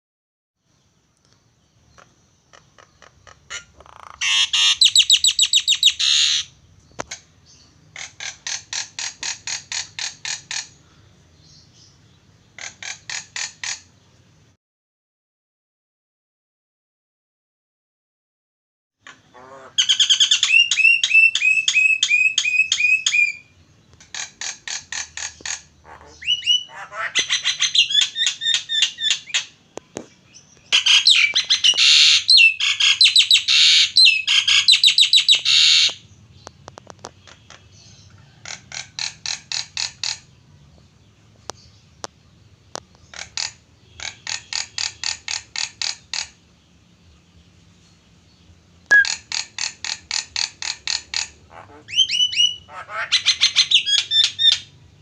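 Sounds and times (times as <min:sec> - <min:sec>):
starling singing shrill trills: 0:04.2 - 0:06.5.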